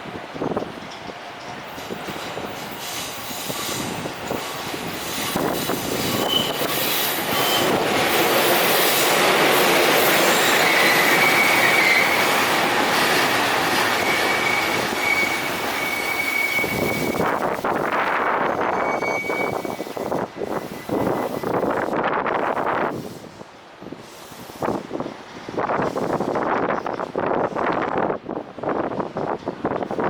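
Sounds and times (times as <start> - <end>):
electric train running past: 0.0 - 26.7
train wheels squealing: 1.8 - 17.5, 18.4 - 21.7.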